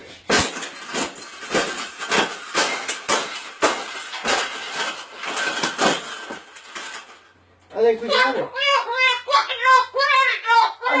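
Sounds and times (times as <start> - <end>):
wire cage clanking and rattling: 0.2 - 7.4.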